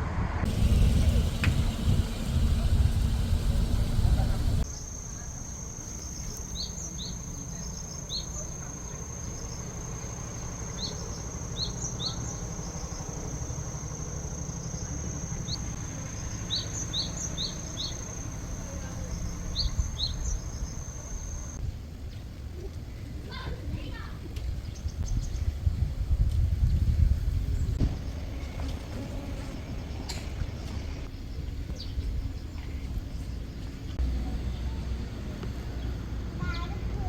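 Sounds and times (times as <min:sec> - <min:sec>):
low rumble: 0:00.0 - 0:04.7.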